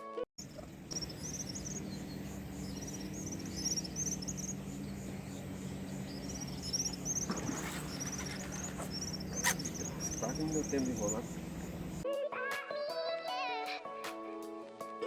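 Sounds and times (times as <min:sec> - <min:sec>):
small birds chirping: 0:00.4 - 0:12.0
steady low hum: 0:00.4 - 0:12.0.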